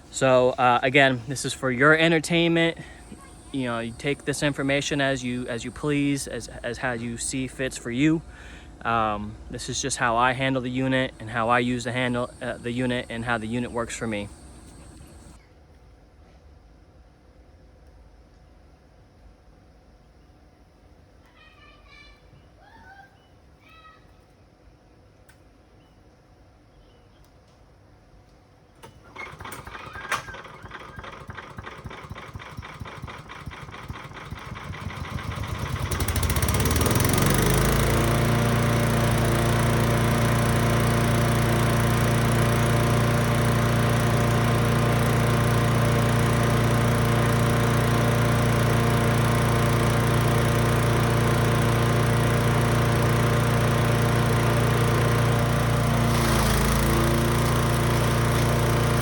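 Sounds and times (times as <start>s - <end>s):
wood chipper engine starting and running: 0.0s - 15.4s, 28.8s - 59.0s.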